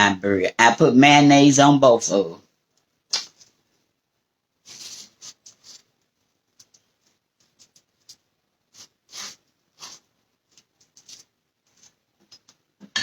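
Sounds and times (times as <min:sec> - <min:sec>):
knife scraping on bread: 0:08.7 - 0:12.0.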